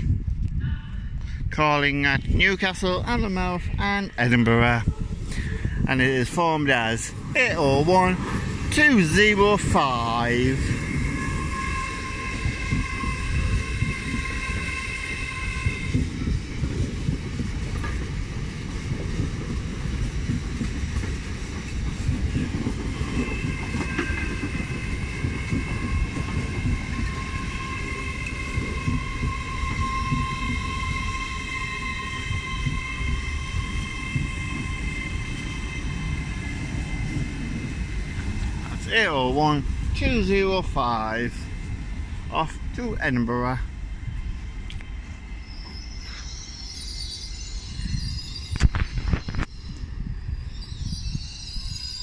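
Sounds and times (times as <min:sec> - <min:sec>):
train wheels rumbling on rails: 0:02.1 - 0:52.0
high-pitched wheel squeal: 0:10.5 - 0:16.4, 0:22.9 - 0:37.0.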